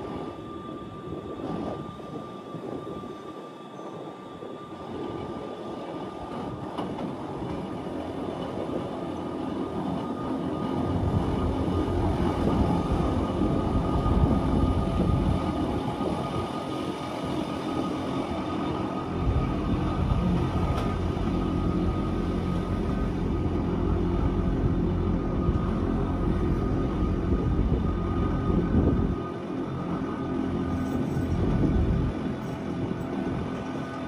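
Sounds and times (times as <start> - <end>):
train high whine: 0.0 - 34.0.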